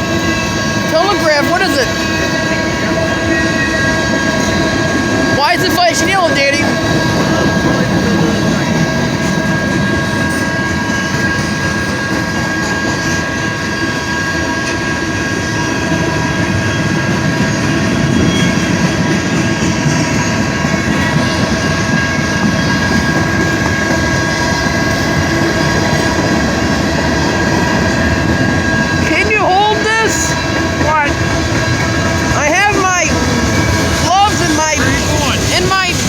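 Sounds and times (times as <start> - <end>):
freight train rumbling past: 0.0 - 36.0
steady high tones: 20.4 - 36.0.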